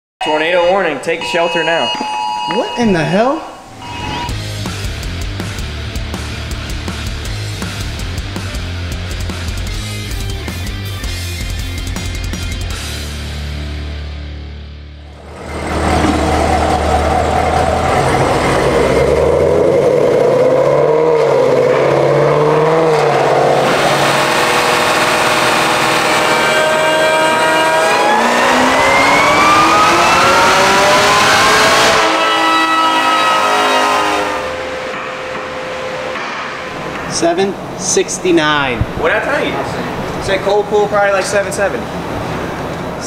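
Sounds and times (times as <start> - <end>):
car engine revving on a dyno: 15.1 - 37.0.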